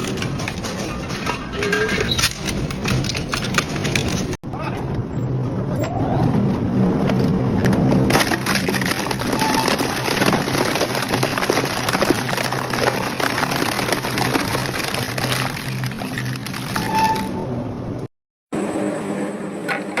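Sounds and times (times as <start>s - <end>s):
shredder cutters cracking material: 8.1s - 16.9s.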